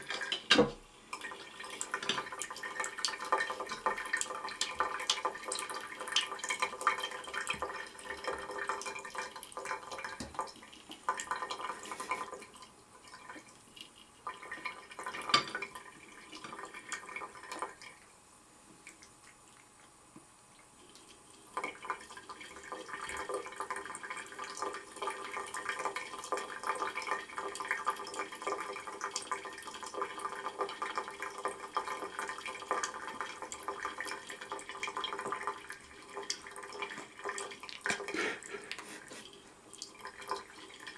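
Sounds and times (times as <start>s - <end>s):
tap water splashing into sink: 0.0s - 12.4s, 14.5s - 17.9s.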